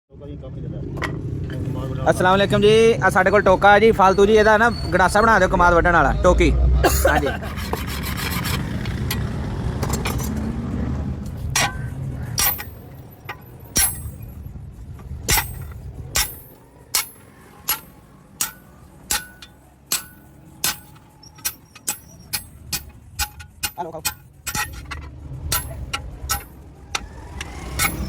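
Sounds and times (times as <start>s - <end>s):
hammer striking metal on anvil: 11.5s - 14.4s, 15.3s - 27.1s, 27.8s - 28.0s.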